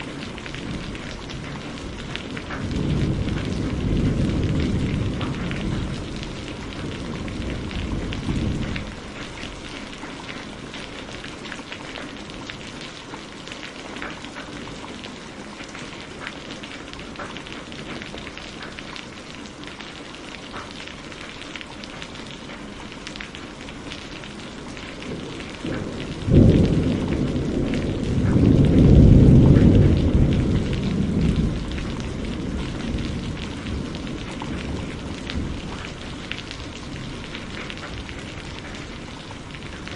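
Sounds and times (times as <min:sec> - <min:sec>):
thunderclap: 0:00.0 - 0:09.7, 0:24.8 - 0:39.9
low thunder rumble: 0:00.0 - 0:10.9, 0:24.2 - 0:39.9
raindrops pattering: 0:00.0 - 0:39.9
steady rain falling: 0:00.0 - 0:39.9.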